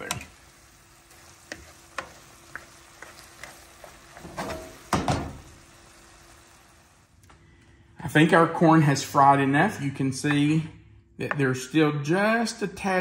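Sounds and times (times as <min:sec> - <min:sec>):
faint sizzle in skillet: 0:00.0 - 0:07.5.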